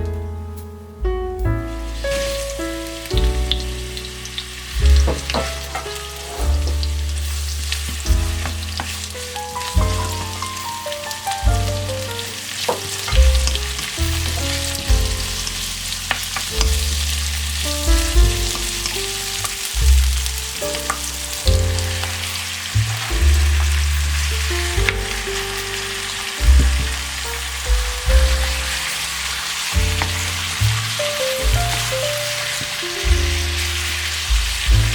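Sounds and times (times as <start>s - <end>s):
soft background music: 0.0s - 34.9s
stir-fry sizzling in a pan: 1.7s - 34.9s.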